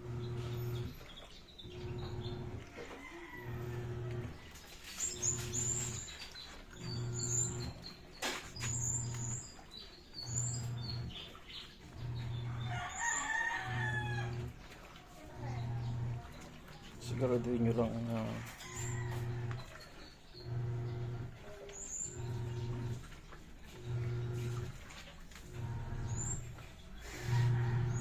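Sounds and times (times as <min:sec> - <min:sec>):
washing machine motor agitating: 0:00.0 - 0:28.0
chickens clucking and chirping: 0:00.1 - 0:28.0
rooster crowing: 0:02.6 - 0:04.4, 0:12.4 - 0:14.6, 0:18.2 - 0:19.6, 0:27.1 - 0:28.0.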